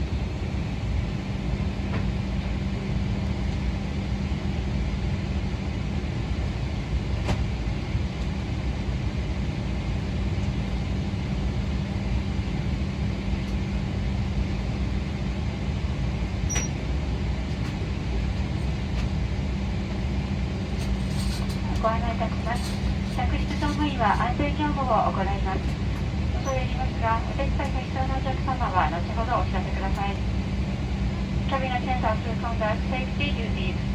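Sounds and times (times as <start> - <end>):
cabin air conditioning hum: 0.0 - 33.9
low steady drone: 9.9 - 33.9.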